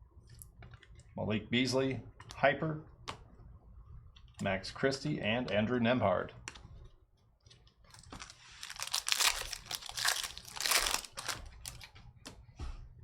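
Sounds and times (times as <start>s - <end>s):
card pack wrappers tearing: 7.9s - 11.9s.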